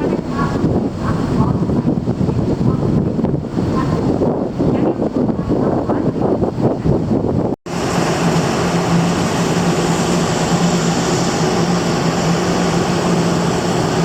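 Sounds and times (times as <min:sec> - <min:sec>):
wind buffeting: 0:00.0 - 0:14.0
ferry machinery drone: 0:07.7 - 0:14.0.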